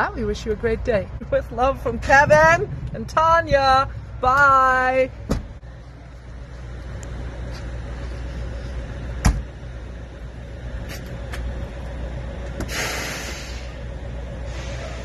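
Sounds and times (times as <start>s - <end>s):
diesel truck engine idling: 0.0s - 15.0s
short hiss: 12.7s - 13.8s.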